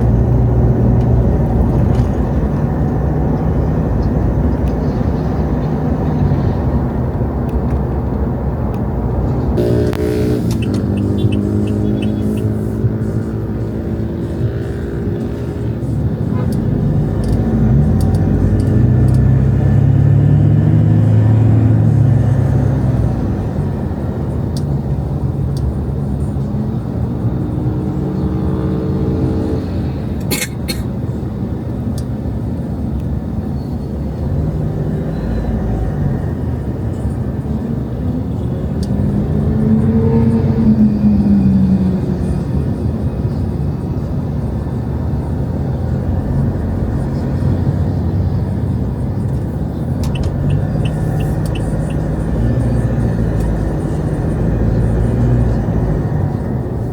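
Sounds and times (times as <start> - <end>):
road noise: 0.0 - 56.9
vehicle engines passing: 0.0 - 56.9
sharp clicks: 49.3 - 52.1.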